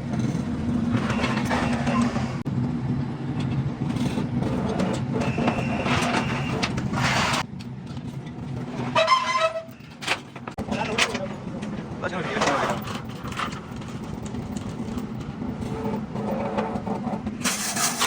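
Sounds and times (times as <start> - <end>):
engine running: 0.0 - 8.8.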